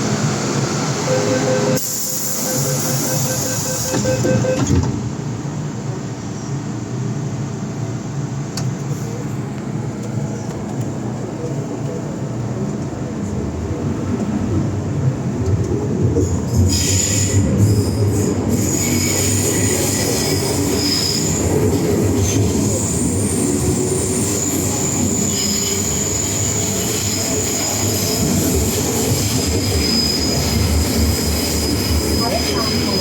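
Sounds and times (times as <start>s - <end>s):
train rumbling on track: 0.0s - 33.0s
wheel squeal: 1.2s - 4.6s, 16.6s - 21.5s, 22.3s - 33.0s.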